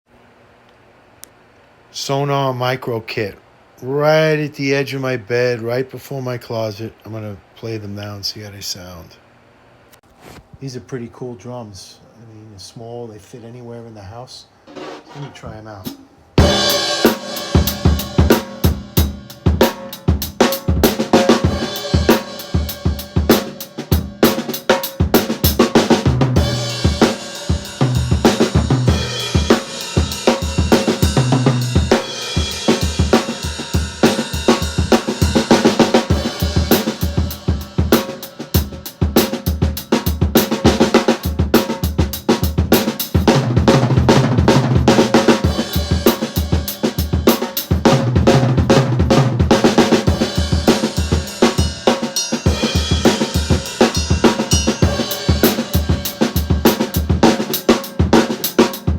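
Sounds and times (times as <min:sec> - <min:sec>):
cymbals and hi-hat: 0:14.7 - 0:58.9
snare drum: 0:14.7 - 0:58.9
bass drum: 0:16.4 - 0:24.4, 0:25.0 - 0:51.9, 0:52.5 - 0:58.9.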